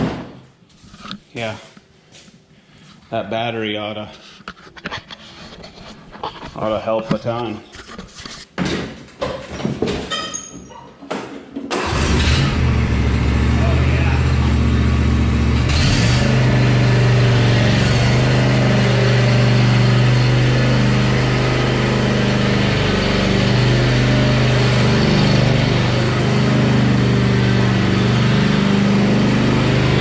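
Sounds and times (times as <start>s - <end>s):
lawn tractor engine running: 11.7s - 30.0s.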